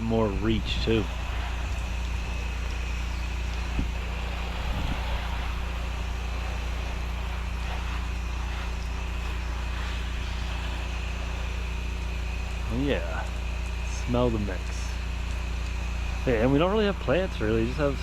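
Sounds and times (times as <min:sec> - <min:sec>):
small engine running: 0:00.0 - 0:18.0
water spray hissing: 0:00.0 - 0:18.0.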